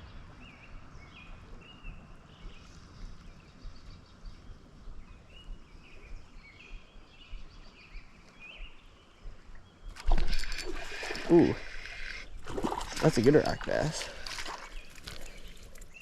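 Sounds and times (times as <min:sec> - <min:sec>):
birds chirping: 0:00.0 - 0:16.0
faint outdoor background noise: 0:00.0 - 0:16.0.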